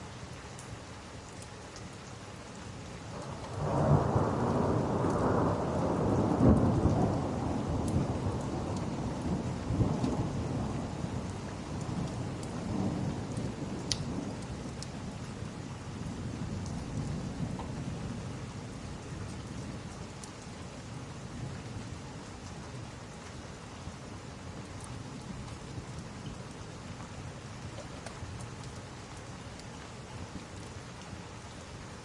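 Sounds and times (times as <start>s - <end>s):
steady rain: 0.0s - 32.0s
thunder rumbling: 3.2s - 15.2s.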